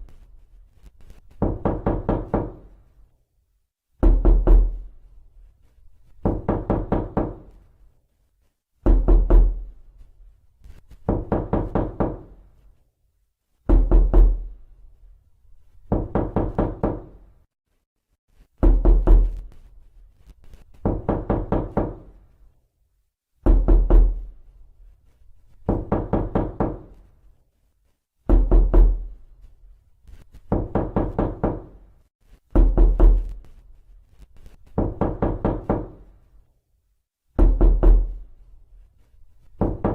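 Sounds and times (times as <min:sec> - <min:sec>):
knocking on a door: 0:01.4 - 0:02.7, 0:04.0 - 0:04.9, 0:06.2 - 0:07.6, 0:08.8 - 0:09.7, 0:11.0 - 0:12.4, 0:13.7 - 0:14.5, 0:15.9 - 0:17.2, 0:18.6 - 0:19.4, 0:20.8 - 0:22.2, 0:23.4 - 0:24.3, 0:25.7 - 0:27.0, 0:28.3 - 0:29.1, 0:30.5 - 0:31.8, 0:32.5 - 0:33.3, 0:34.7 - 0:36.1, 0:37.4 - 0:38.2, 0:39.6 - 0:39.9.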